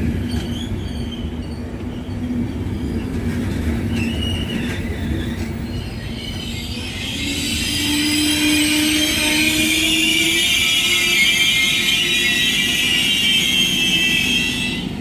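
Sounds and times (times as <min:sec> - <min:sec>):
train wheels rumbling on rails: 0:00.0 - 0:15.0
high-pitched wheel squeals: 0:03.9 - 0:15.0.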